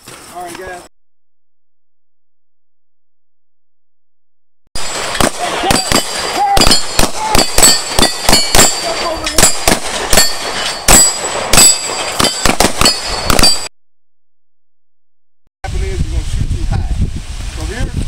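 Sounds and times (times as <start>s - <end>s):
high metallic ringing: 4.8s - 13.7s
rapid gunfire: 4.8s - 13.7s.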